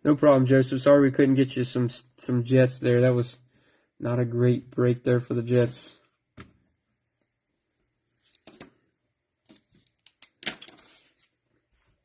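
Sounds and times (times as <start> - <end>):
card rustle: 8.2 - 8.8, 9.5 - 11.4.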